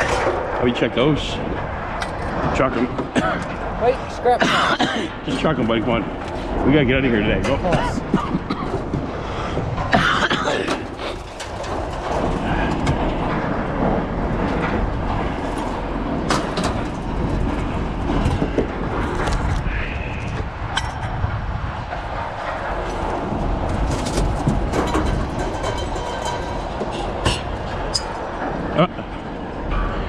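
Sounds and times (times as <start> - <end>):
mechanical rumble: 5.1 - 30.0
metal clanks and knocks: 9.9 - 19.4, 23.7 - 28.6.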